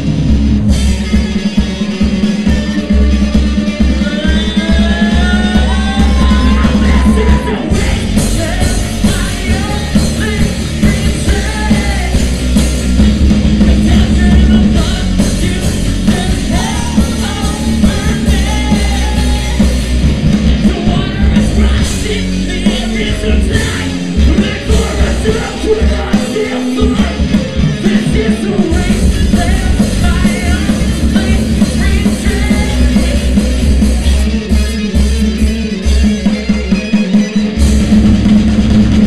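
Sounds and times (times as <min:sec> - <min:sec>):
live rock band playing: 0:00.0 - 0:39.0
person singing: 0:03.9 - 0:12.4, 0:13.9 - 0:19.8, 0:20.6 - 0:33.6.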